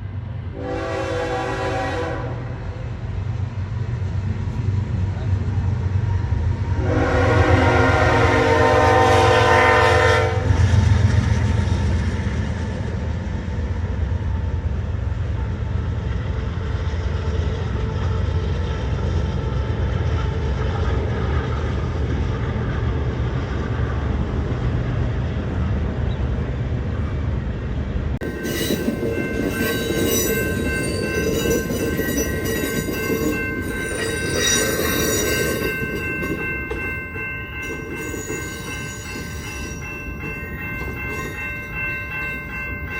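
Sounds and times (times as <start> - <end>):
train rumbling: 0.0 - 42.9
train horn blast: 0.5 - 2.8, 6.7 - 10.7
train wheels squealing: 28.2 - 40.0.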